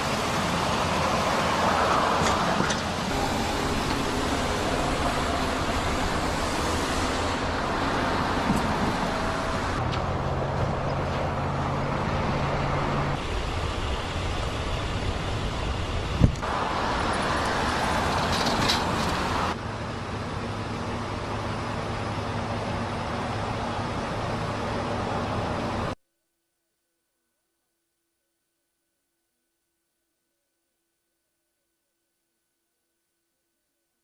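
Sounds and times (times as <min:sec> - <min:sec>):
road traffic noise: 0:00.0 - 0:26.0.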